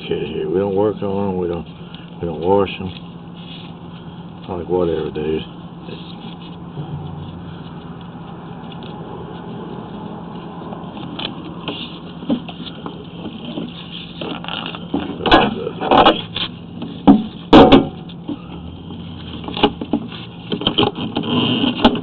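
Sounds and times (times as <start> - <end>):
steady mechanical hum: 0.0 - 22.0
loud knocks and clatters: 17.0 - 18.0.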